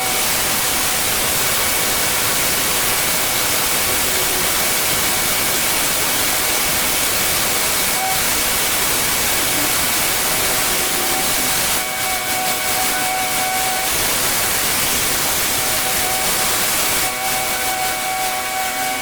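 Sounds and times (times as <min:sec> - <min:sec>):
pressure washer spraying water: 0:00.0 - 0:19.0.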